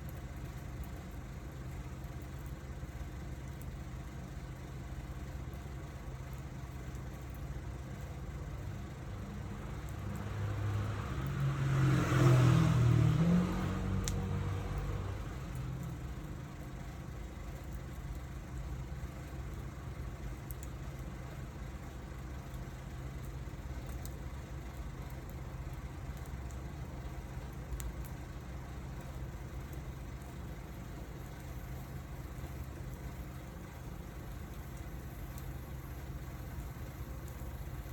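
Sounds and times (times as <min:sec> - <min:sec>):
wood fire crackling: 0:00.0 - 0:37.9
vehicle passing: 0:09.9 - 0:15.8.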